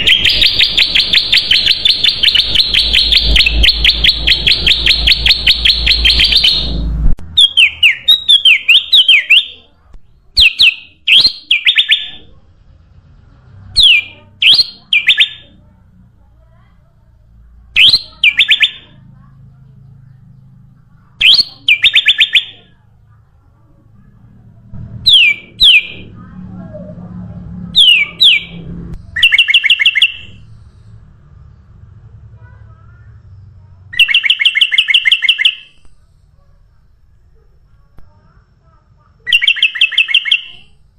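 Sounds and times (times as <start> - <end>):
rapid sharp bird chirps: 0.0 - 9.7, 10.4 - 12.2, 13.7 - 15.6, 17.8 - 19.0, 21.1 - 22.8, 25.0 - 26.3, 27.8 - 31.0, 33.9 - 35.8, 39.2 - 40.8.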